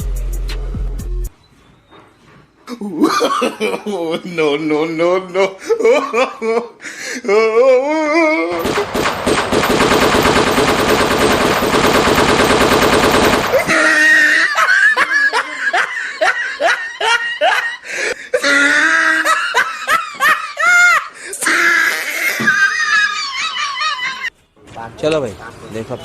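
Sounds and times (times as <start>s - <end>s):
person laughing: 2.7s - 8.8s, 13.5s - 24.3s
machine-gun firing: 8.6s - 13.8s.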